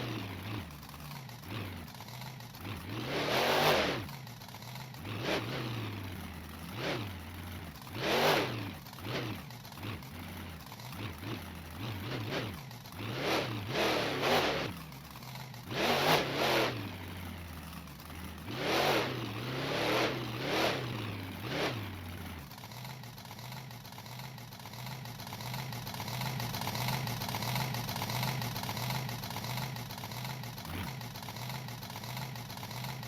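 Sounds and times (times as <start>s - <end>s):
truck engine revving: 0.0s - 4.3s, 5.0s - 22.5s.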